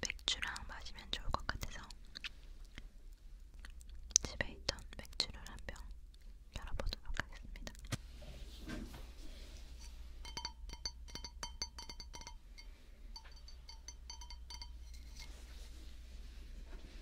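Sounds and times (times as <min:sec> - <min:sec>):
rapid ringing clinking strokes: 0:09.8 - 0:15.7.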